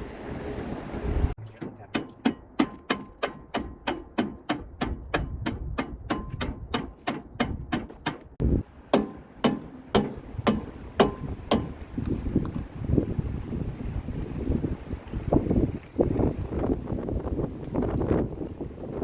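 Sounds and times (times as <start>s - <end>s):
hammer blows: 1.4s - 12.0s.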